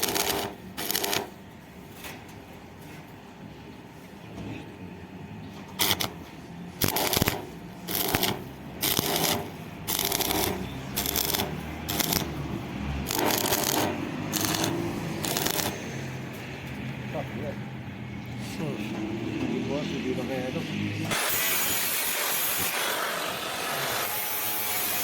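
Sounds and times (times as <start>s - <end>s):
electric arc welding bursts: 0.0s - 1.4s, 5.8s - 6.2s, 6.8s - 12.4s, 13.0s - 15.8s, 21.1s - 25.0s.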